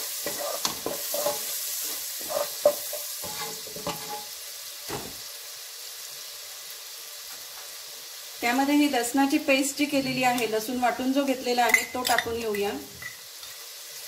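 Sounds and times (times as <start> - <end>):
onions sizzling in hot oil: 0.0 - 14.0
wooden spatula scraping pan: 0.2 - 4.3.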